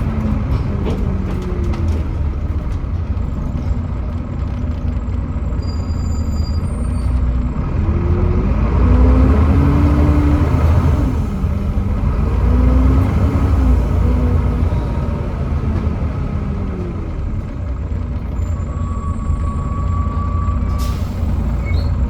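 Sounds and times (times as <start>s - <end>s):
bus diesel engine rumbling: 0.0s - 22.0s.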